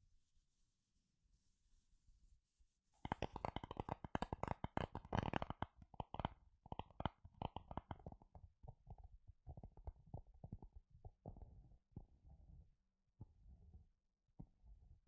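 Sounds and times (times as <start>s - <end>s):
fingers tapping and scratching: 3.0s - 8.8s.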